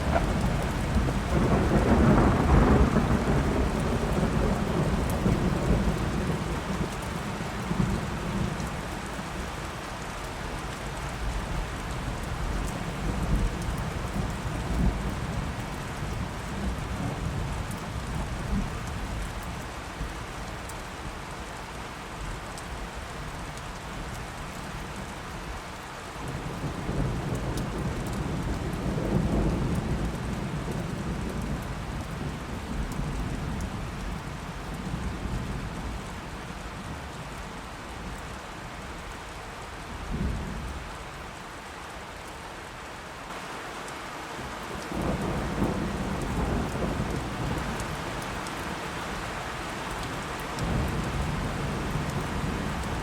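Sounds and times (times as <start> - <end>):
rolling thunder: 0.0 - 8.6, 44.9 - 48.4, 50.6 - 53.0
steady rain: 0.0 - 53.0.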